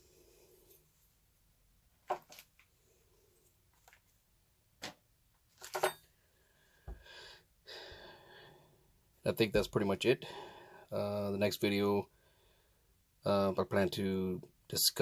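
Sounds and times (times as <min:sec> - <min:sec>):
soft breathy noise: 0:00.0 - 0:01.2, 0:06.2 - 0:09.1, 0:10.2 - 0:11.2, 0:12.0 - 0:13.0.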